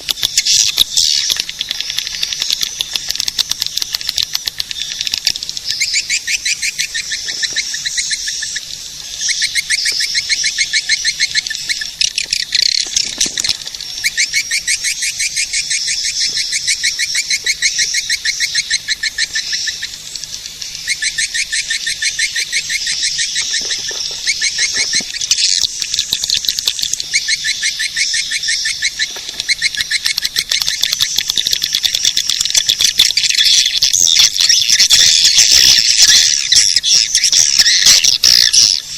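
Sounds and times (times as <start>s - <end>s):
swiftlet chattering chirps: 0.0s - 38.9s.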